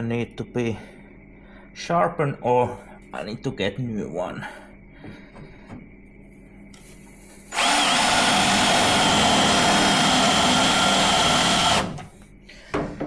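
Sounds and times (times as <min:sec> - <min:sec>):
power drill drilling into steel: 0:07.5 - 0:12.0.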